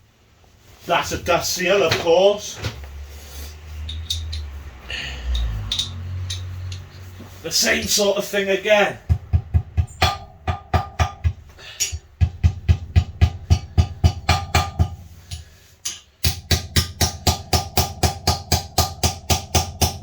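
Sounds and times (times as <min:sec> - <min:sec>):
hammer tapping metal: 0:05.3 - 0:07.0, 0:09.0 - 0:20.0.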